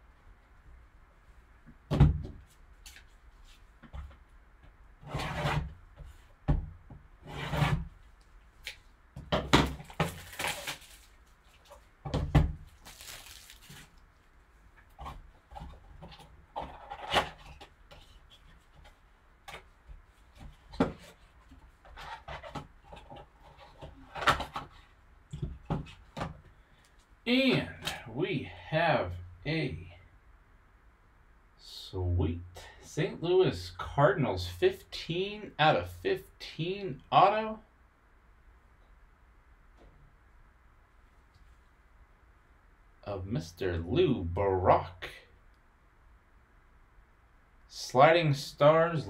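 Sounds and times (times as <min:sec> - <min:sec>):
wrapping rustling and tearing: 0:09.8 - 0:11.9, 0:12.6 - 0:14.2.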